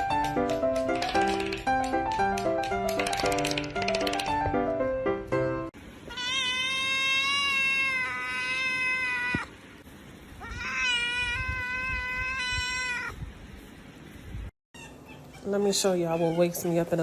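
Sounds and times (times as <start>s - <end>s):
animal crying out: 6.1s - 9.5s, 10.4s - 13.2s.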